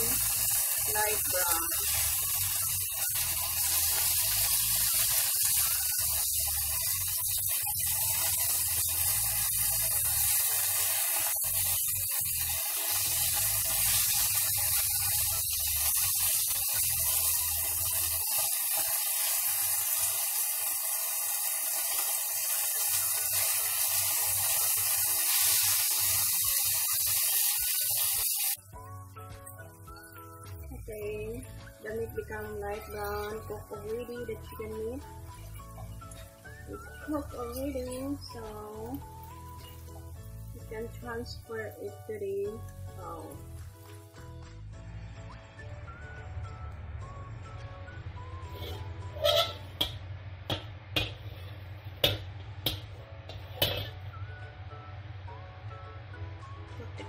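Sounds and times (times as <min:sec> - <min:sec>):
chicken sizzling in frying oil: 0:00.0 - 0:44.4.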